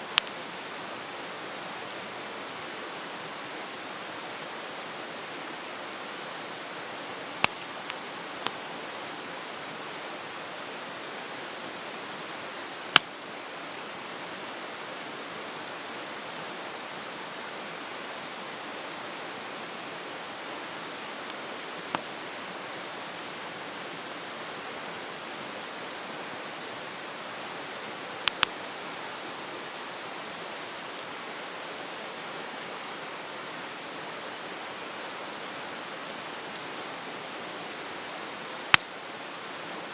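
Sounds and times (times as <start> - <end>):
campfire hissing: 0.0 - 39.9
burning wood popping and crackling: 7.4 - 8.6, 11.9 - 13.1, 28.2 - 28.6, 37.6 - 39.0.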